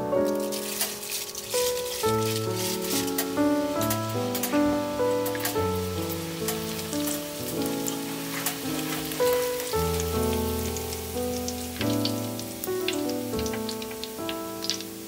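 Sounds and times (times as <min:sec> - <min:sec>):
background music: 0:00.0 - 0:15.0
rice frying in hot oil: 0:00.0 - 0:15.0.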